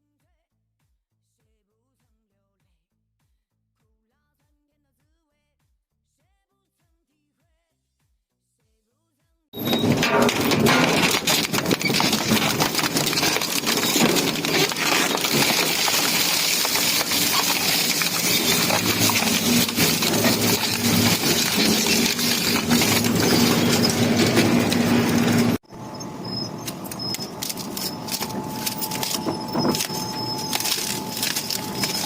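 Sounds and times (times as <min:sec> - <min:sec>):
metal crunching and clattering: 0:09.6 - 0:32.0
shredder motor hum: 0:09.6 - 0:32.0.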